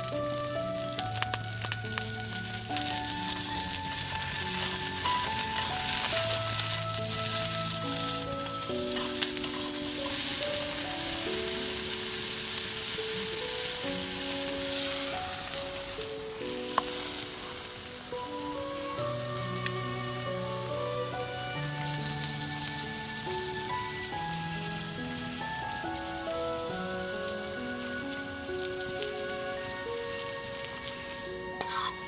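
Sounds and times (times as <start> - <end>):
background music melody: 0.0 - 32.0
fire crackling and hissing: 0.0 - 32.0
sharp pops from fire: 0.4 - 18.9.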